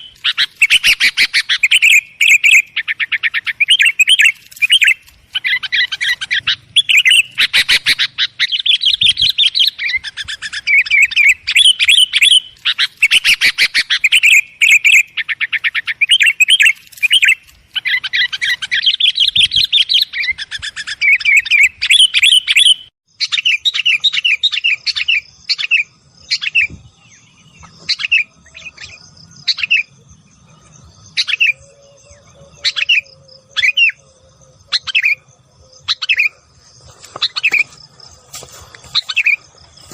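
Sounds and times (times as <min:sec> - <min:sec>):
bulbuls chattering calls: 0:30.6 - 0:39.9.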